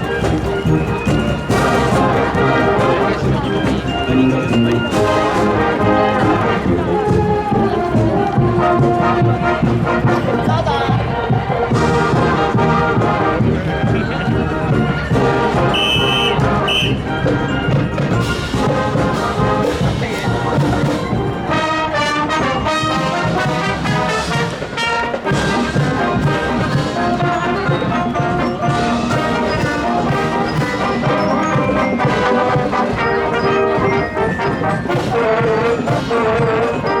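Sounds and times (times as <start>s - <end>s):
marching brass band playing: 0.0s - 37.0s
steady drum beat: 0.2s - 21.3s.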